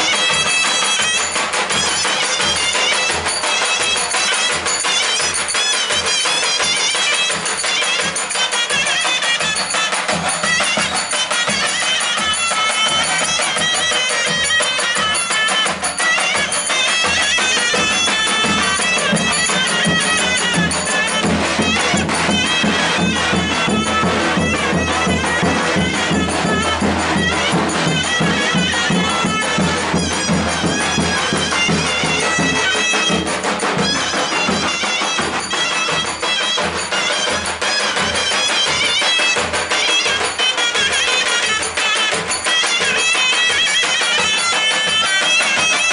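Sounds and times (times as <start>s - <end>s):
fast drum beat: 0.0s - 45.9s
shrill reed wind instrument melody: 0.0s - 45.9s.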